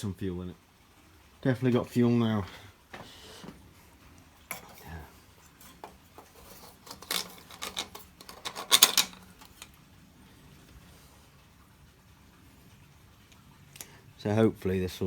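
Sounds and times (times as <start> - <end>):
tools and parts knocking and clicking: 5.6 - 9.8.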